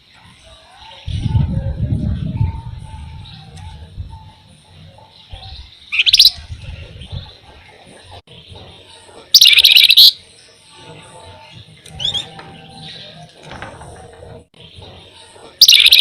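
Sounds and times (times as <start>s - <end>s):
songbird trilling: 5.9s - 6.4s, 9.4s - 10.2s, 15.6s - 16.0s.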